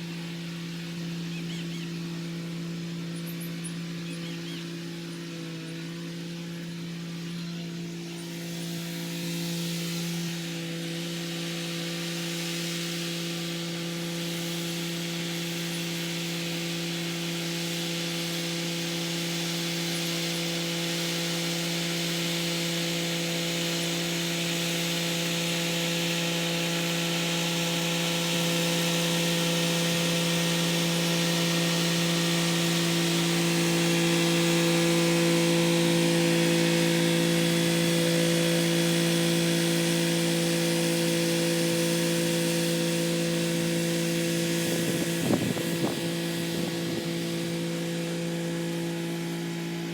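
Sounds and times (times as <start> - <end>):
tractor diesel engine droning: 27.1 - 49.9.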